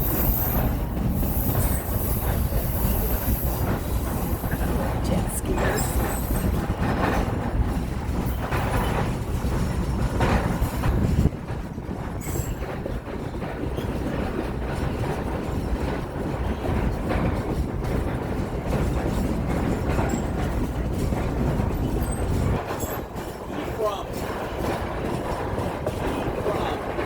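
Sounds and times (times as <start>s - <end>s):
train rumbling on track: 0.0s - 27.0s.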